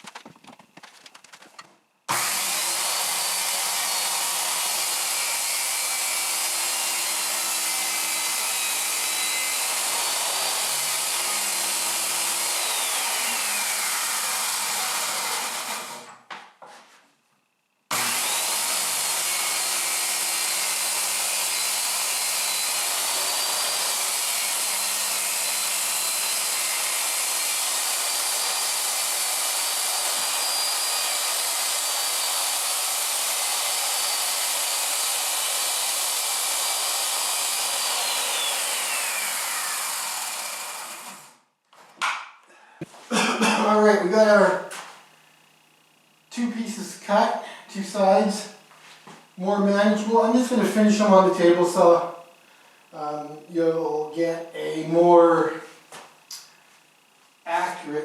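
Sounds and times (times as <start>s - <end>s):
power saw cutting plywood: 2.1s - 16.2s, 17.9s - 41.4s, 46.3s - 56.5s.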